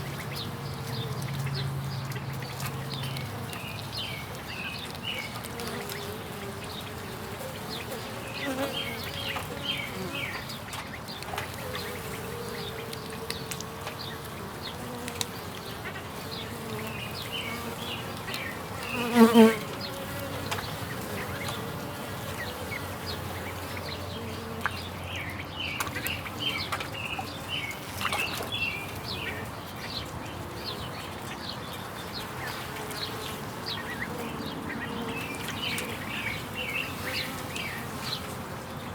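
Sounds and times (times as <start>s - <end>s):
bees buzzing: 2.5s - 10.6s, 11.3s - 25.1s.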